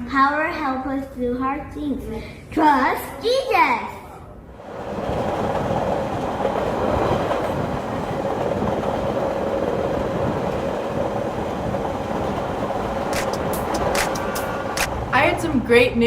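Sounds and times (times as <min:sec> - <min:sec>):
train rumbling on tracks: 0:04.4 - 0:16.0.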